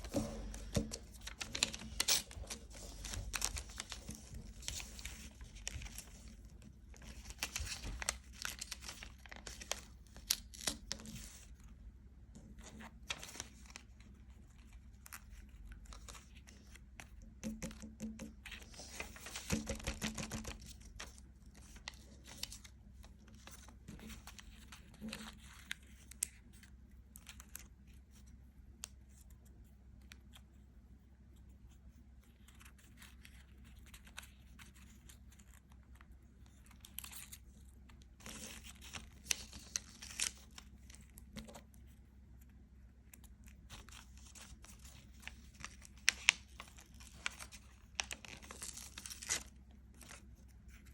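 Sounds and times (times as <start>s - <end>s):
crinkling and tearing: 0.0s - 11.4s, 32.4s - 50.9s.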